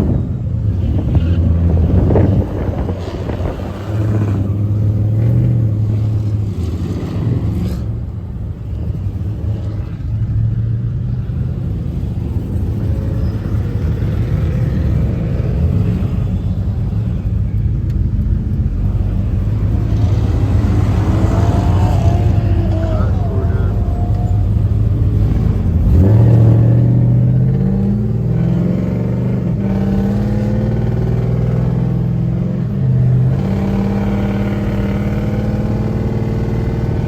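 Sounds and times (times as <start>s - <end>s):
vehicle engine rumbling: 0.0s - 37.0s.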